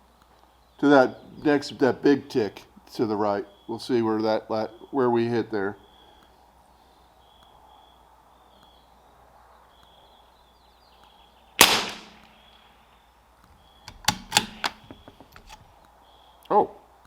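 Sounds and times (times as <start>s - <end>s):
rifle bolt metallic clicks: 11.6s - 12.4s, 13.9s - 15.6s
rifle shot with echo: 11.6s - 12.5s, 13.9s - 14.8s.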